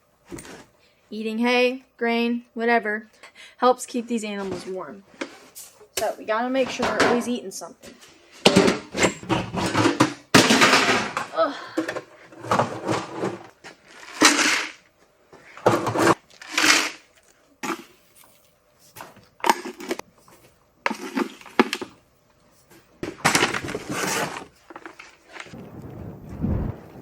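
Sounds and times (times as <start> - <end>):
oats rattling and rustling: 12.5 - 21.9, 23.0 - 25.6.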